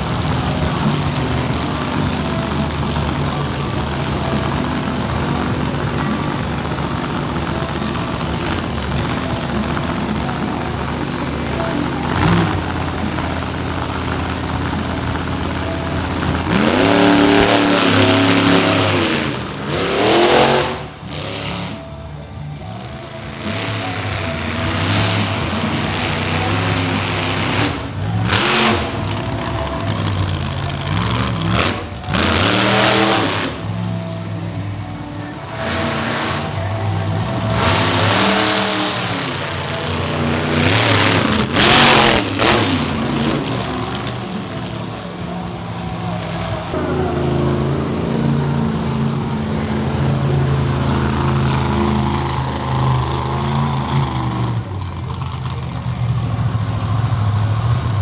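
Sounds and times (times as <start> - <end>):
monster truck engine revving: 0.0 - 58.0.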